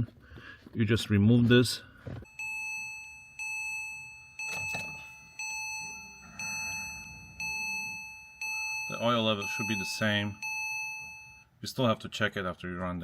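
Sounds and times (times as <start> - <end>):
car warning chime: 2.2 - 11.5.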